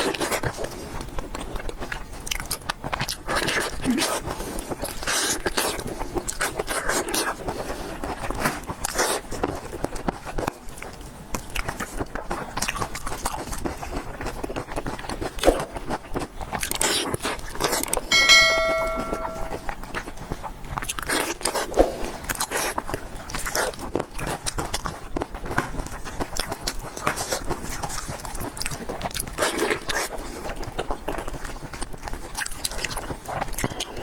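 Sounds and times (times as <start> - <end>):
short ringing bell-like tone: 18.1 - 19.7.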